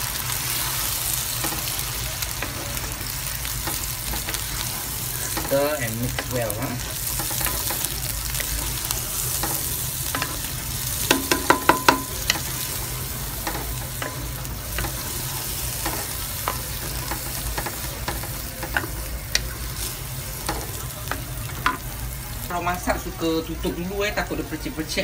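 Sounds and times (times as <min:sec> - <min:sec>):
paste sizzling in a pan: 0:00.0 - 0:25.0
spatula knocking on pan: 0:11.0 - 0:12.6.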